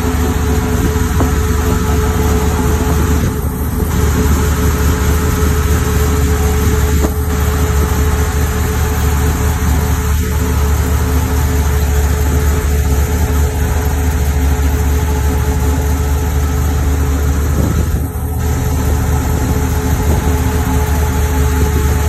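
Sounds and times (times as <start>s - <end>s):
car engine idling smoothly: 0.0s - 22.0s.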